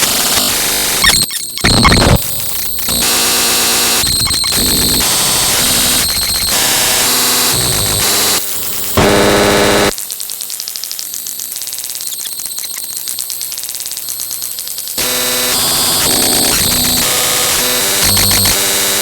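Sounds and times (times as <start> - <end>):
rapid electronic pulsing: 0.0 - 9.9, 15.2 - 18.6
electronic static and buzzing: 0.0 - 19.0.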